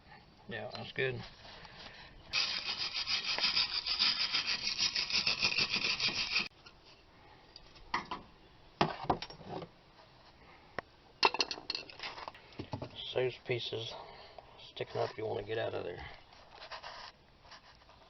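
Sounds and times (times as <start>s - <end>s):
wire brush scrubbing rusty metal: 2.3s - 6.5s.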